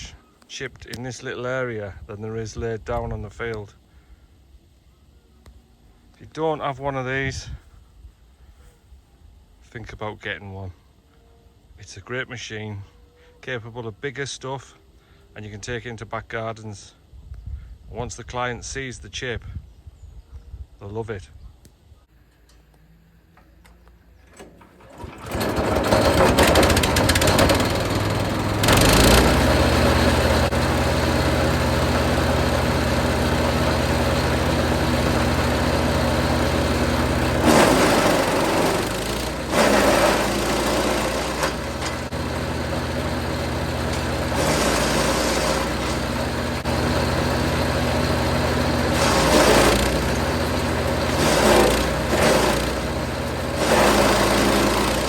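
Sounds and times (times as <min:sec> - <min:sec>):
wood chipper running: 0:24.3 - 0:55.0
material going through chipper: 0:24.4 - 0:55.0.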